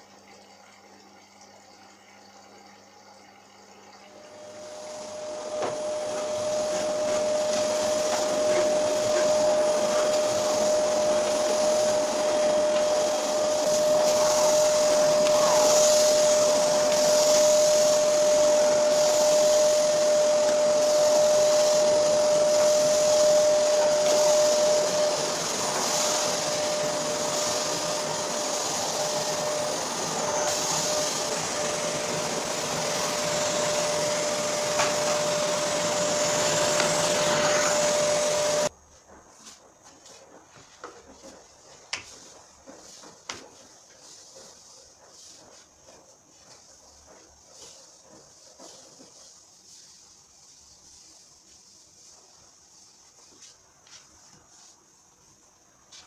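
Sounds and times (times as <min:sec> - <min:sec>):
vacuum cleaner running: 0:04.1 - 0:56.0.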